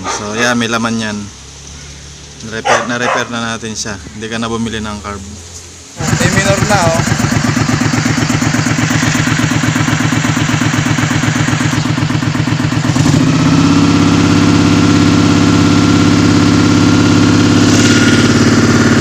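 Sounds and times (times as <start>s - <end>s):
motorcycle engine running: 6.0s - 19.0s.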